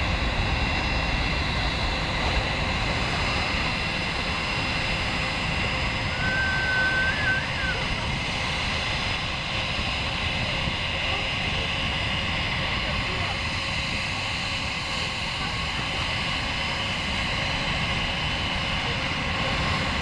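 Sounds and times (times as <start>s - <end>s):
jet engines roaring: 0.0s - 20.0s
high whistle: 6.1s - 7.9s.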